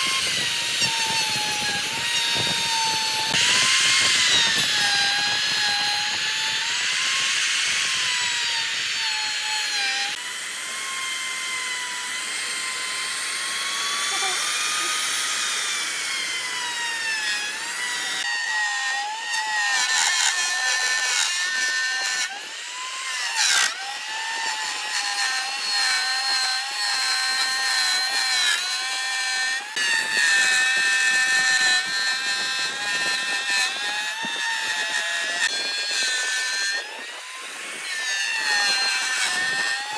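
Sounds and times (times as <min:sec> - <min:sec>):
power tool motor whine: 0:00.0 - 0:39.9.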